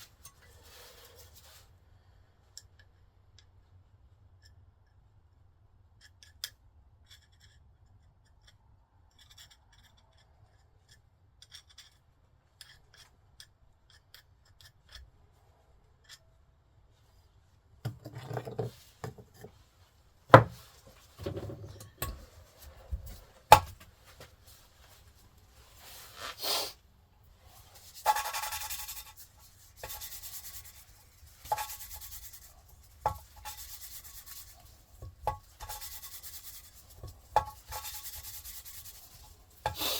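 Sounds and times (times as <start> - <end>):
handling noises with knocks: 17.8 - 19.7, 20.3 - 25.5
hand rubbing strokes: 24.0 - 39.9.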